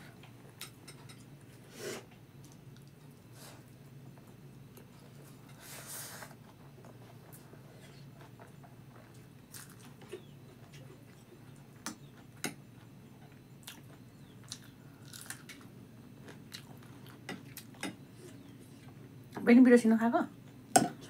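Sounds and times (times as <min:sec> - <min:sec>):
person chewing noodles: 0:06.9 - 0:11.4, 0:13.6 - 0:18.9.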